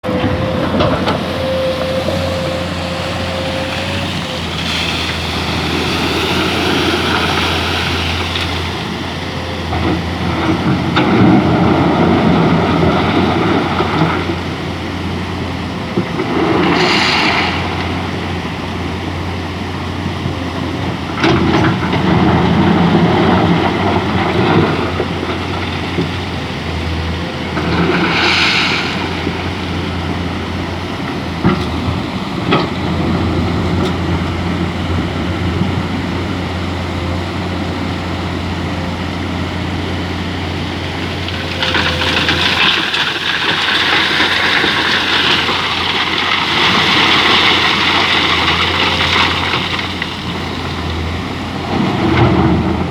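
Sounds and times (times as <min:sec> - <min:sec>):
water rushing: 0:00.0 - 0:20.0, 0:22.6 - 0:52.2
excavator diesel engine running: 0:00.0 - 0:52.9
water and wet sand sloshing: 0:01.0 - 0:10.0.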